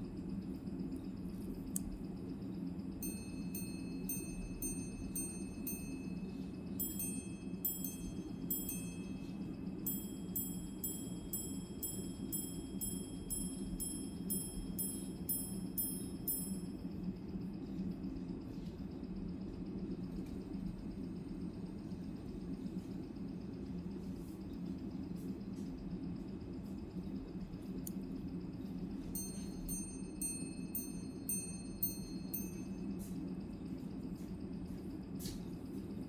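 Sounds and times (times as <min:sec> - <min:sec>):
watch chiming on gongs: 0:03.0 - 0:17.0, 0:29.1 - 0:33.2.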